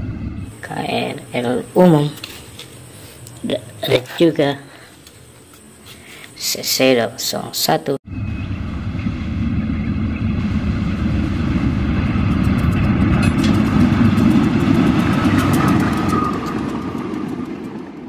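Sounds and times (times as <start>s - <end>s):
diesel train passing: 0.0s - 4.4s, 8.0s - 18.0s.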